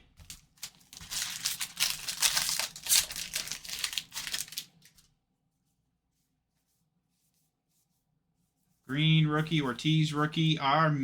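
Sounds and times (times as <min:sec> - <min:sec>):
foil wrapper crinkling and tearing: 0:00.2 - 0:05.1.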